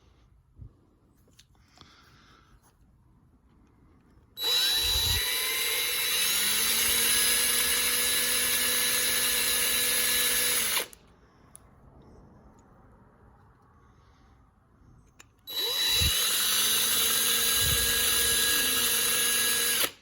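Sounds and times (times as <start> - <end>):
electric drill whining: 4.4 - 11.0, 15.5 - 20.0.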